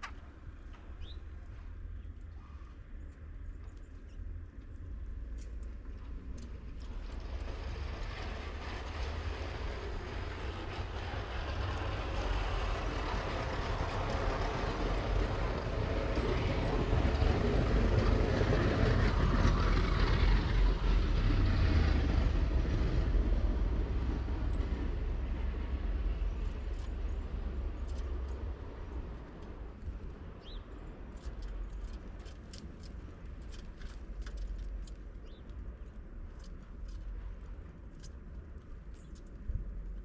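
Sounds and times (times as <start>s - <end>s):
passing vehicle rumble: 6.4s - 37.8s.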